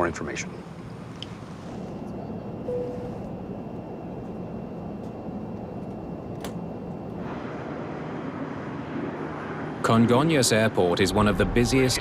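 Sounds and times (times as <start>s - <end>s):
airliner cabin drone: 0.0s - 12.0s
brief tone: 2.1s - 3.6s.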